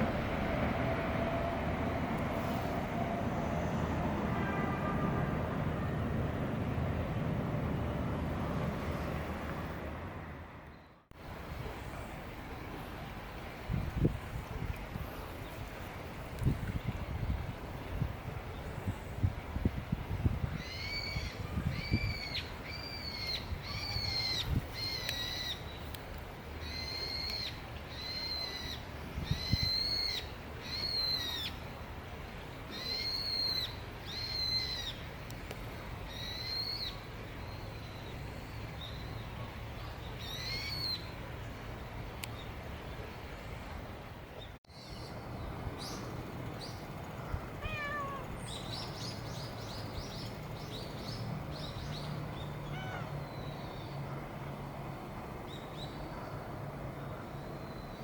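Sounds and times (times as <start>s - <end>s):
animal high-pitched calls: 47.6s - 48.3s, 52.6s - 53.1s.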